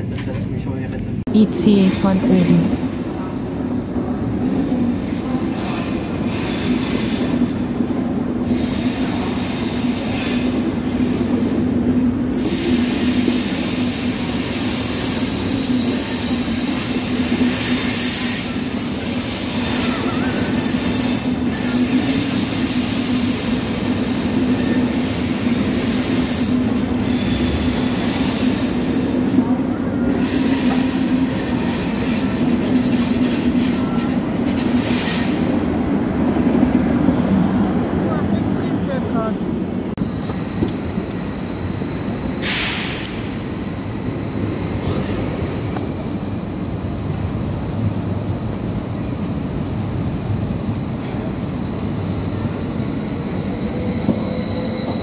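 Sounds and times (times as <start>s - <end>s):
train wheels rumbling on rails: 0.0s - 55.0s
high wheel squeal: 12.4s - 29.3s, 40.0s - 46.8s, 51.0s - 55.0s.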